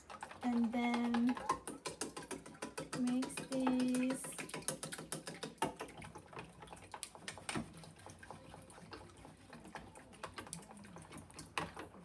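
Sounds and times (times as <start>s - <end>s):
chopsticks clicking in metal bowl: 0.0s - 5.6s.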